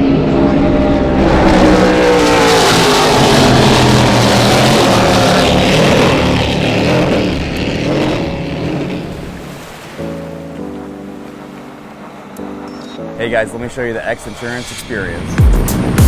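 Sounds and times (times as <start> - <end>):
rushing noise: 0.0 - 9.8, 13.7 - 16.0
powerboat engines running hard: 0.0 - 16.0.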